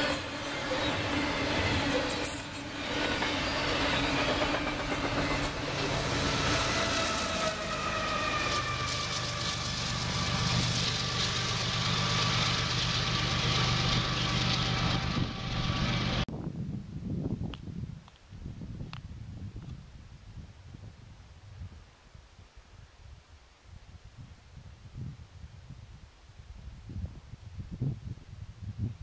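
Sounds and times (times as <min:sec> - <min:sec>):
rolling train wheels: 0:00.0 - 0:16.2
locomotive engine drone: 0:00.0 - 0:16.3
multi-note locomotive horn: 0:05.8 - 0:12.2.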